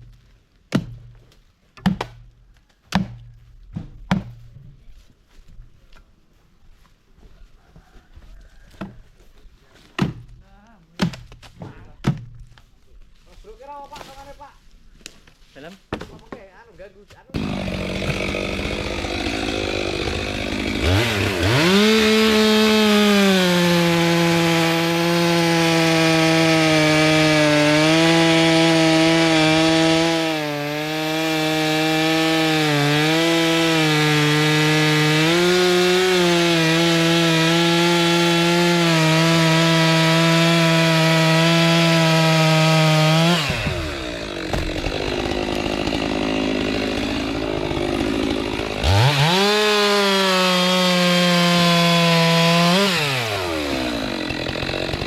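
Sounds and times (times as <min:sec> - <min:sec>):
chainsaw cutting wood: 0:17.2 - 0:55.0.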